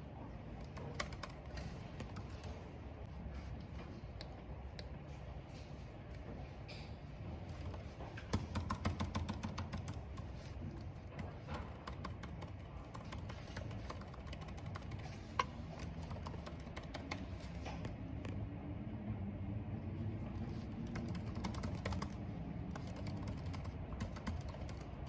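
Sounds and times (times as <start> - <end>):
typing on computer keyboard: 0.6 - 2.6, 7.5 - 17.7, 20.4 - 25.0.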